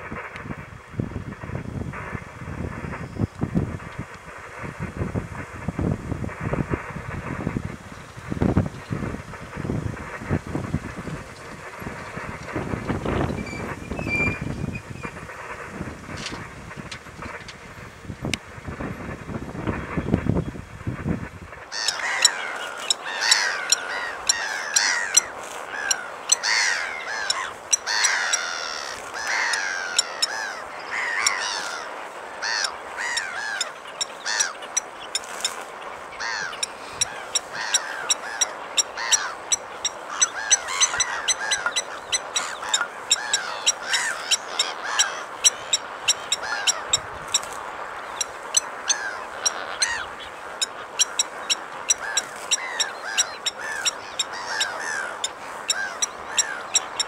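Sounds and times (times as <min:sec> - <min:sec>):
harsh down-curving bird calls: 0:21.6 - 0:57.0
lapwings tinking calls: 0:21.7 - 0:57.0.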